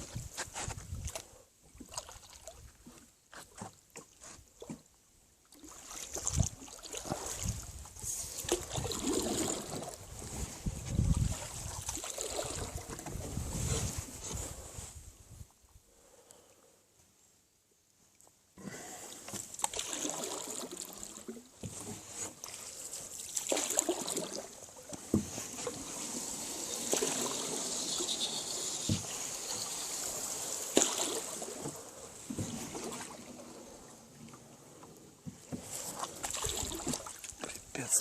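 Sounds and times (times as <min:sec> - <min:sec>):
water splashing and trickling: 0:00.0 - 0:14.8, 0:19.0 - 0:38.0
weeds rustling and scraping: 0:25.0 - 0:32.7.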